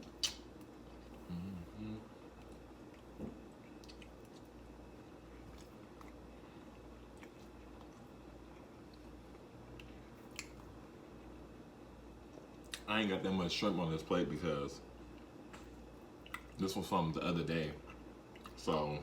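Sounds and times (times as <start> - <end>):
wet mouth clicks: 0.0 - 0.5
low hum: 0.0 - 12.6
chewing food: 2.2 - 10.8, 15.0 - 16.7, 17.8 - 18.8.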